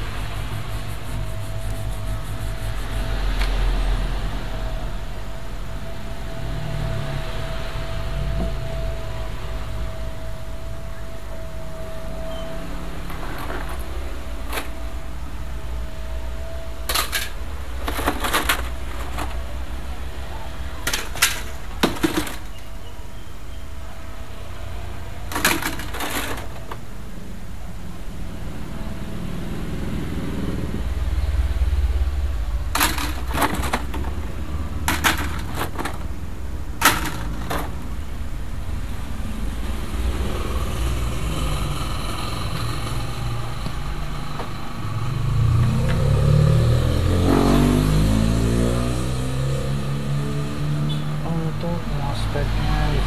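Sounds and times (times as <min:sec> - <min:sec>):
small parts and tools clattering: 0:13.0 - 0:14.9, 0:16.8 - 0:19.6, 0:20.7 - 0:22.7, 0:25.2 - 0:26.9, 0:32.7 - 0:36.2, 0:36.8 - 0:38.0.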